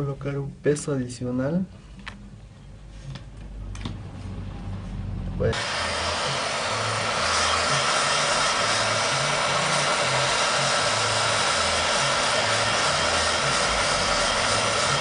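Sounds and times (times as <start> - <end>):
heat gun blowing with whine: 5.5 - 15.0.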